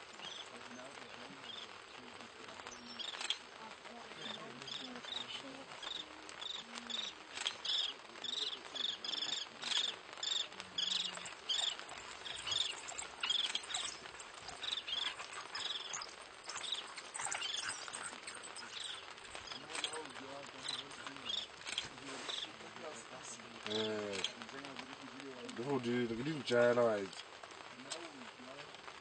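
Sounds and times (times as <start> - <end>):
faint background hiss: 0.0 - 29.0
high-pitched animal chirps: 9.6 - 20.0.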